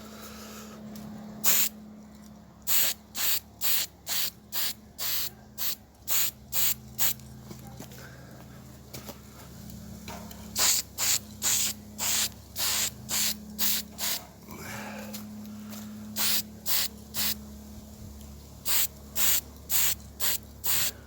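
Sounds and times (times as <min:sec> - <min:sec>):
steady low hum: 0:00.0 - 0:21.0
spray paint hissing: 0:01.4 - 0:01.8, 0:02.7 - 0:07.2, 0:10.6 - 0:14.3, 0:16.2 - 0:17.4, 0:18.6 - 0:21.0.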